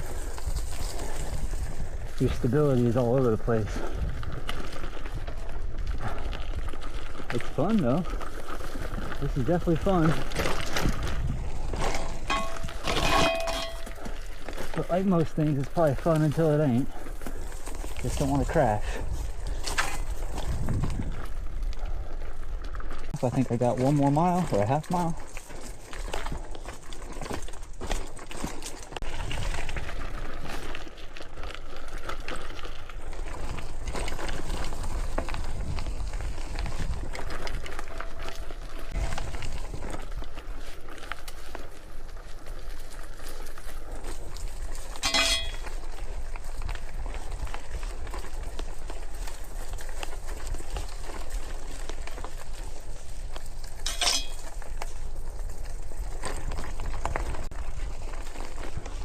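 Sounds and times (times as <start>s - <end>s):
bike rattling: 0.0s - 59.0s
bike tyres crunching on dirt: 0.0s - 59.0s
bike rattling metallic clinks: 8.3s - 21.2s, 36.6s - 40.0s, 44.7s - 46.2s, 53.6s - 55.0s.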